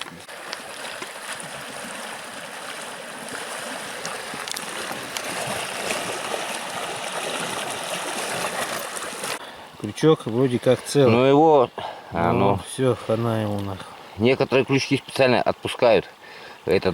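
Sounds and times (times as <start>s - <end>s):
river water rushing: 0.2s - 9.5s.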